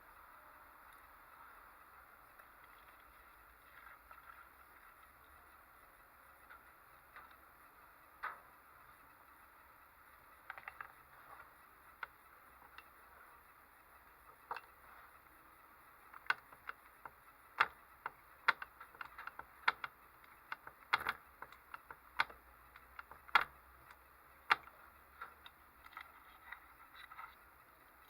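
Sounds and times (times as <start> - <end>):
model engine clicks and taps: 16.1 - 27.2.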